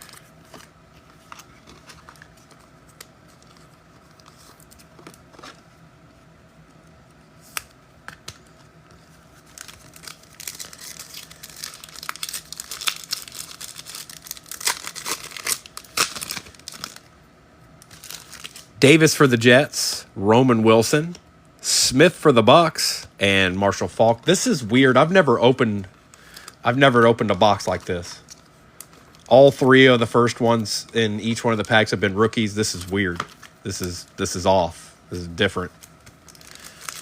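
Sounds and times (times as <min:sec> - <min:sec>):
foil wrappers tearing and crinkling: 0:00.0 - 0:00.7, 0:09.3 - 0:17.1, 0:17.9 - 0:18.7, 0:35.5 - 0:37.0.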